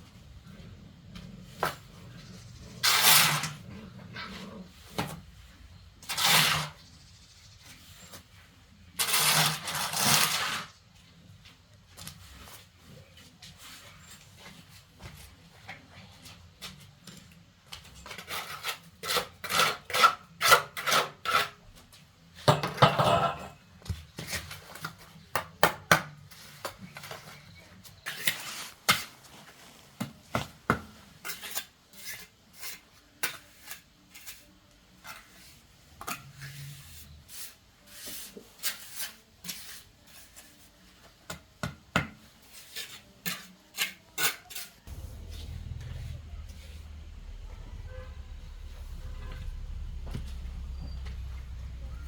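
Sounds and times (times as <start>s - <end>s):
scraping: 44.9s - 52.0s.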